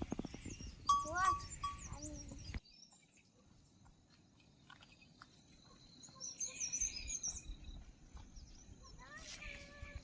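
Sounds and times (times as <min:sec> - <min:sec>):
bird chirps: 0:00.0 - 0:03.7, 0:04.8 - 0:09.5.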